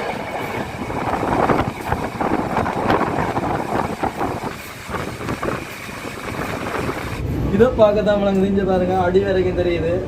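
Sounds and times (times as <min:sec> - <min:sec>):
train wheels clattering on rails: 0:00.0 - 0:07.2.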